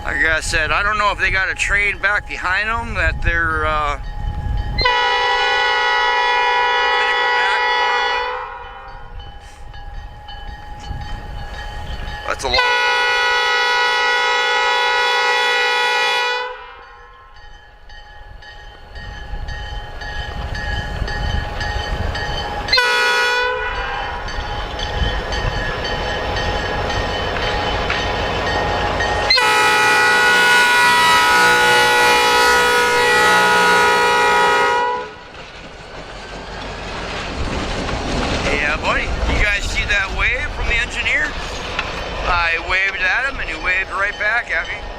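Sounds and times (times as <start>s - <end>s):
locomotive engine and wheels rumbling: 0.0s - 44.9s
locomotive air horn blasts: 4.8s - 8.9s, 12.5s - 16.8s, 22.7s - 24.2s, 29.2s - 35.2s.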